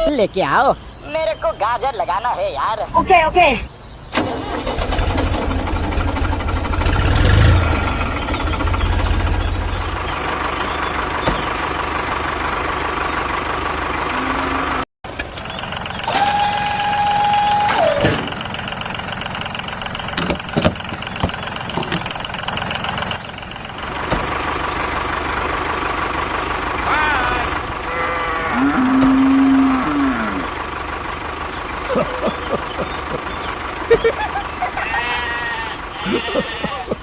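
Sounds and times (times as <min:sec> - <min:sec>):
tractor engine running: 0:00.0 - 0:37.0
horn-like tone falling in pitch: 0:14.1 - 0:14.8.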